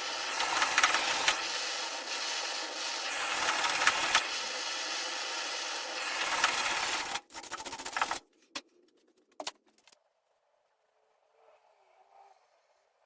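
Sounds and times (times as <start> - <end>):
power tool running: 0.0 - 7.3.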